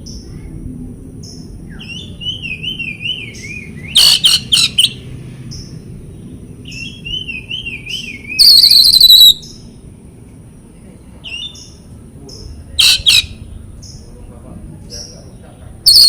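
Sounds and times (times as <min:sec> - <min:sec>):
sharp loud bird notes: 0:01.2 - 0:09.8, 0:11.2 - 0:14.2
harsh rattling bird call: 0:01.2 - 0:10.0, 0:11.2 - 0:16.0
high bird chirps: 0:01.3 - 0:09.7, 0:11.2 - 0:14.1
bird song whistled phrase: 0:01.7 - 0:05.0, 0:06.7 - 0:09.5, 0:11.2 - 0:11.7.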